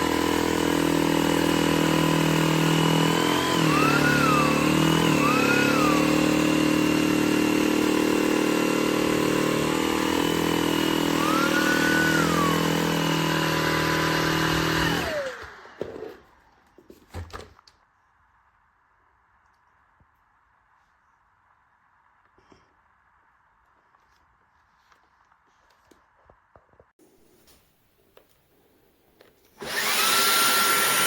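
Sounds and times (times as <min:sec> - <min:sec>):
vacuum cleaner motor running: 0:00.0 - 0:16.2, 0:29.6 - 0:31.0.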